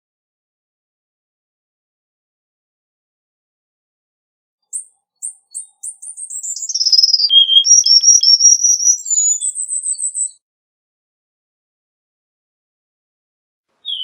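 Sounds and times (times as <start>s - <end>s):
bird singing high trill: 4.7s - 10.4s.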